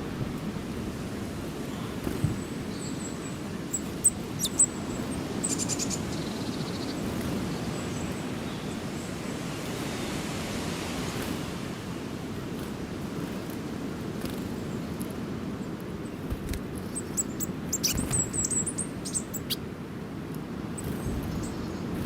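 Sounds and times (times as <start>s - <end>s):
small birds chirping: 1.4s - 10.1s, 14.2s - 19.7s, 20.7s - 22.0s
bird trill of rapid ticks: 1.8s - 8.3s, 16.8s - 19.6s.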